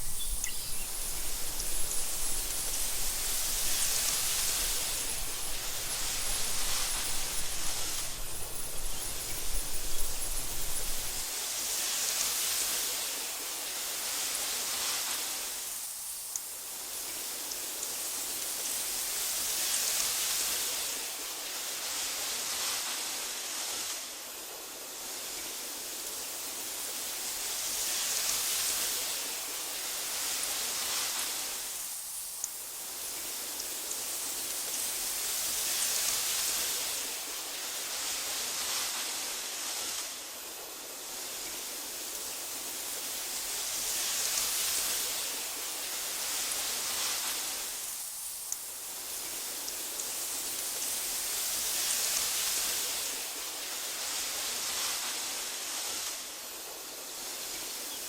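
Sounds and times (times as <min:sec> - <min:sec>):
wind hissing through grass: 0:00.0 - 0:58.0
faint ticks: 0:16.3 - 0:16.5, 0:32.4 - 0:32.6, 0:48.4 - 0:48.7.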